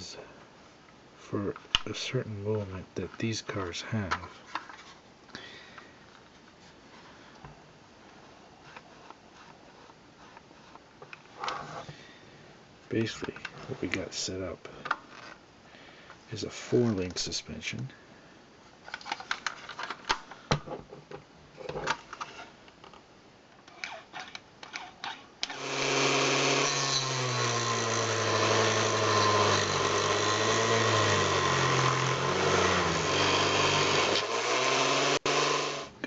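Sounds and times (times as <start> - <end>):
small electric power tool running: 25.5 - 35.9.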